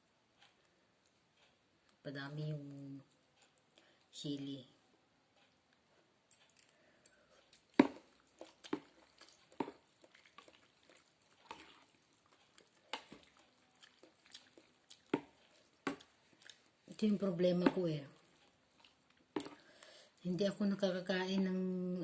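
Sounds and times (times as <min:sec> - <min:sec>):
wet chewing and slurping: 0:06.3 - 0:20.2.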